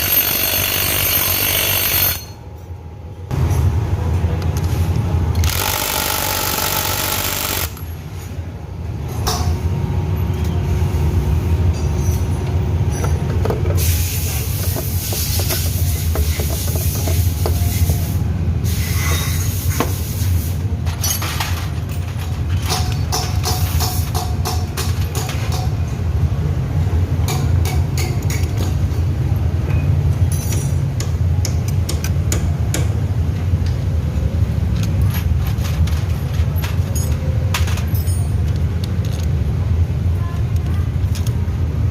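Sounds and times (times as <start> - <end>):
low mechanical hum: 0.0 - 41.9
hiss: 13.8 - 20.6.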